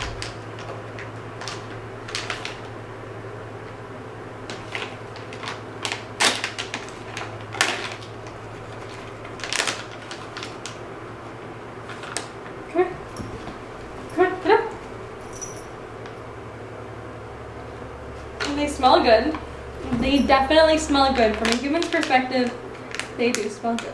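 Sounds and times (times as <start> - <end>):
plastic bag crinkling: 0.0 - 2.8, 4.5 - 10.9, 11.8 - 12.5, 19.9 - 23.9
low steady hum: 0.0 - 23.9.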